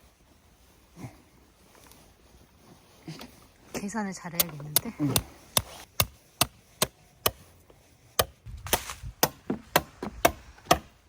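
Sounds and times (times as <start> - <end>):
sharp knocks: 8.2 - 10.9.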